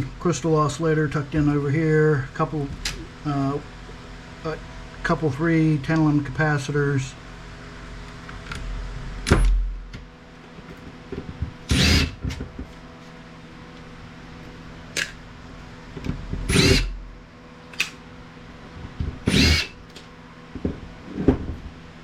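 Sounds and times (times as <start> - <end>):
power driver whirring: 11.7 - 12.2, 16.5 - 17.0, 19.2 - 20.0.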